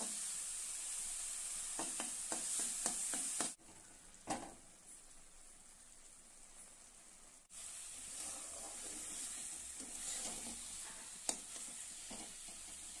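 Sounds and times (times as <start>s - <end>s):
paste sizzling in hot oil: 0.0s - 13.0s
spatula stirring and scraping: 7.6s - 13.0s.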